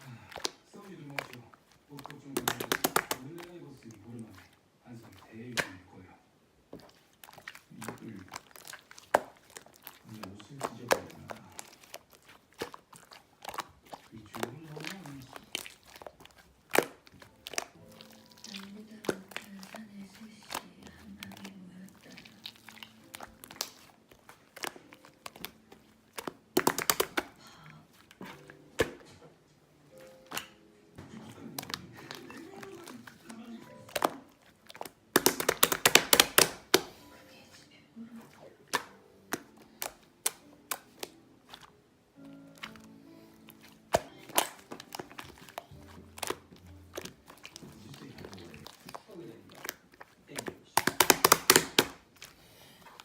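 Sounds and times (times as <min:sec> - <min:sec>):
slime popping and clicking: 0:00.0 - 0:04.0, 0:05.3 - 0:05.8, 0:06.8 - 0:29.1, 0:29.9 - 0:30.7, 0:31.4 - 0:37.0, 0:38.2 - 0:52.3
faint tv voices: 0:00.0 - 0:06.3, 0:09.8 - 0:12.1, 0:13.5 - 0:16.3, 0:17.5 - 0:23.8, 0:26.7 - 0:39.9, 0:42.9 - 0:53.0.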